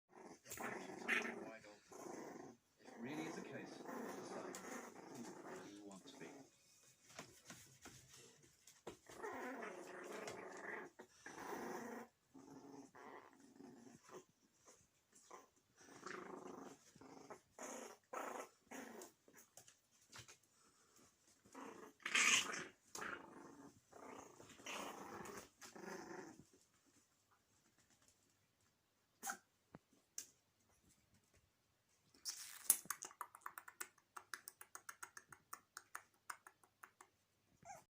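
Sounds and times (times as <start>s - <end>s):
puppies growling: 0.1s - 28.1s.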